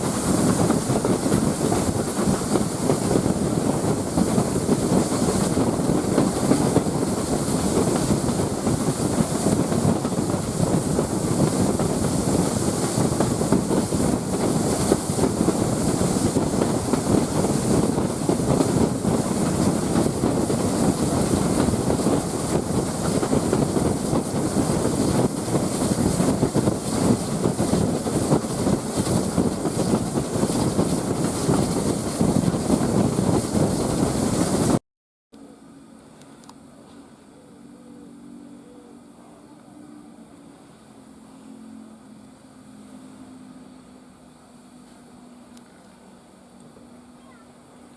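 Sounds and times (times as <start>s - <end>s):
train wheels rumbling on rails: 0.0s - 34.8s.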